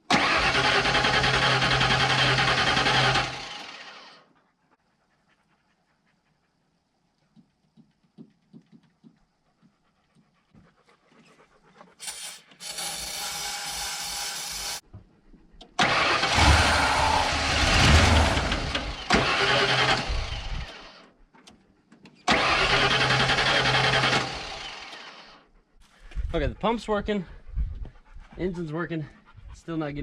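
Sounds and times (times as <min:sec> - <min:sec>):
engine starter cranking: 0:00.1 - 0:04.1, 0:15.8 - 0:21.0, 0:22.3 - 0:25.3.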